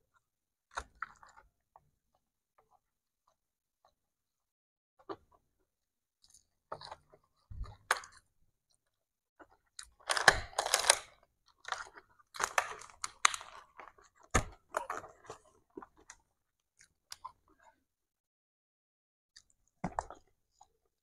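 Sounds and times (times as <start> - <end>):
chewing and crunching: 6.2 - 17.8.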